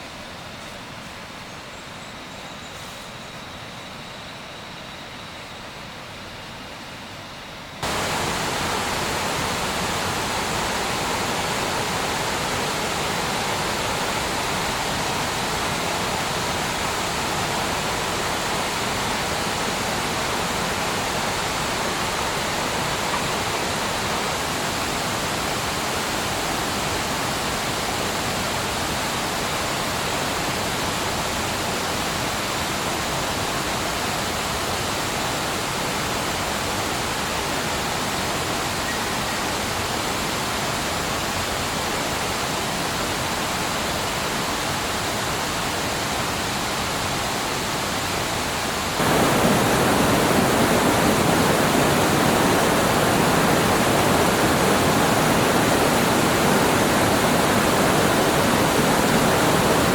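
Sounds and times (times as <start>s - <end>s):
rush of falling water: 7.8s - 59.9s.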